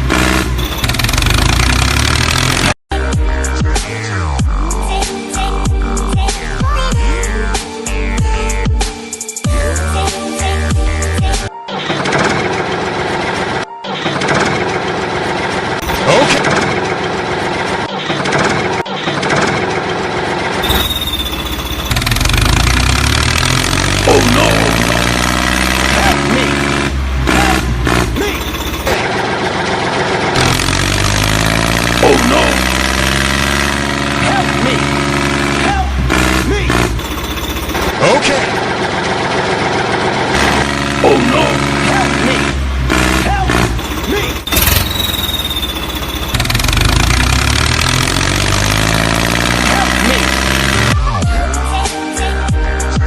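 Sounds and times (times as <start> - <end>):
tractor engine running: 0.0 - 2.8, 12.2 - 51.0
high steady tone: 20.6 - 22.8, 28.2 - 29.0, 37.0 - 37.9, 43.7 - 47.1.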